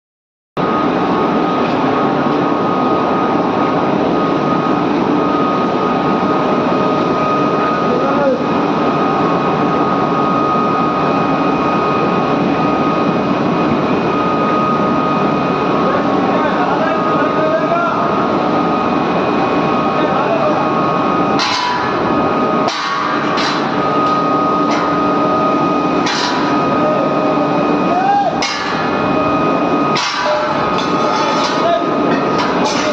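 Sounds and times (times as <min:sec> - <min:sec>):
furnace roaring: 0:00.6 - 0:32.9
sharp metallic clanks: 0:21.4 - 0:25.1, 0:26.0 - 0:26.7, 0:28.4 - 0:29.2, 0:29.8 - 0:32.9.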